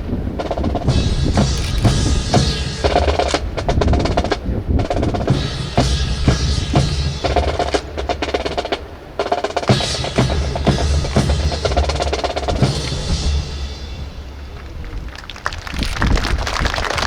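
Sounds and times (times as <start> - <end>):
marching snare drum: 0.3 - 14.6
marching bass drum: 0.4 - 14.6.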